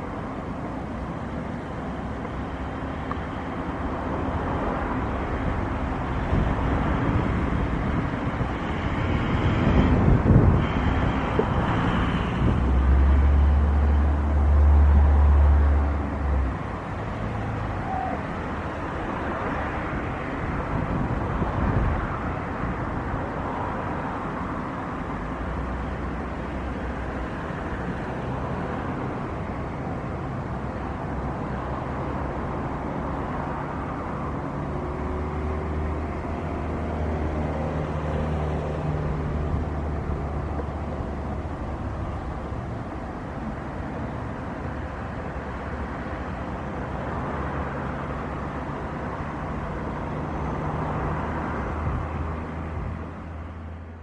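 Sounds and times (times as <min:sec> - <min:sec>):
steady outdoor roar: 0:00.0 - 0:54.0
wind buffeting microphone: 0:05.3 - 0:13.1, 0:19.0 - 0:24.3.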